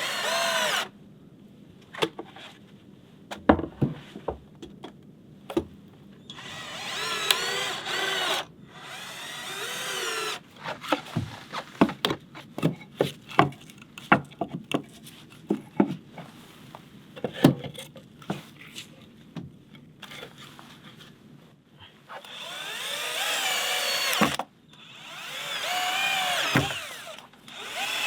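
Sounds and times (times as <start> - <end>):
power drill running: 0.0 - 0.9, 6.3 - 10.4, 22.1 - 28.0.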